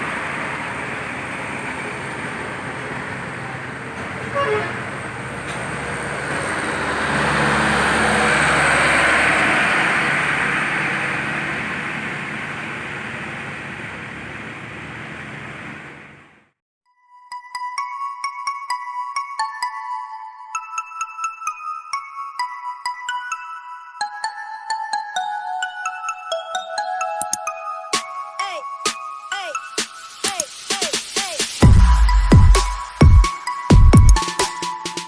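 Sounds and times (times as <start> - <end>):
heavy vehicle passing: 0.0 - 16.6
road traffic: 0.0 - 16.6, 27.0 - 35.0
short horn toot: 4.3 - 4.8.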